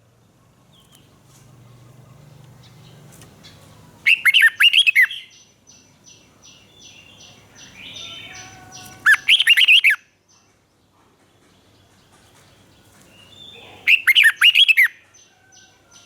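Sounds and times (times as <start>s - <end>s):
bird singing whistled notes: 4.1s - 10.4s, 13.2s - 16.0s.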